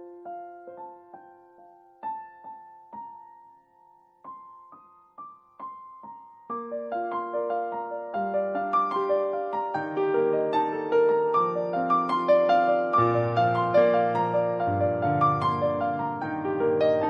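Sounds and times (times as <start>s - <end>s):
gentle piano piece: 0.0s - 17.0s.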